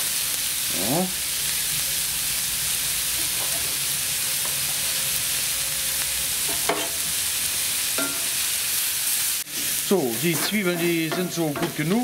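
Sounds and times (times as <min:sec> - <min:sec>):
onions frying sizzle: 0:00.0 - 0:12.0.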